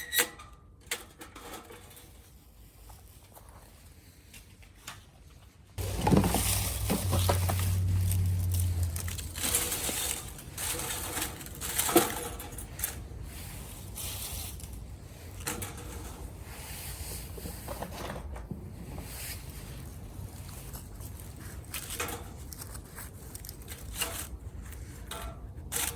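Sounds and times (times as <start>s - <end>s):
low hum: 5.8s - 10.8s.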